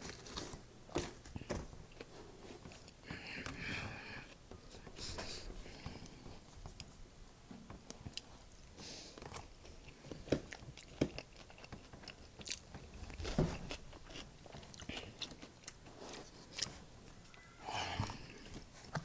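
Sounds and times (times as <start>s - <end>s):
person chewing with crisp crunches: 0.0s - 3.0s, 7.8s - 19.0s.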